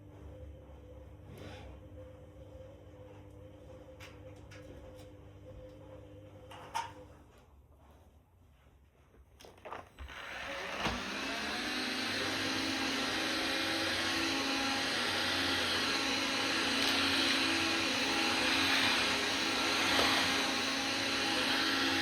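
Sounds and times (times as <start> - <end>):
electric appliance motor running: 10.0 - 22.0.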